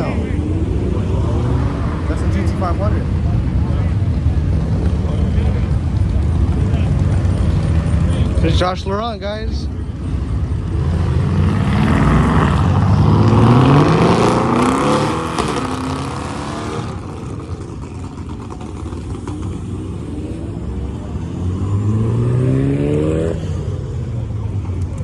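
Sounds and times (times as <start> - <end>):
car engine accelerating: 9.8 - 25.0.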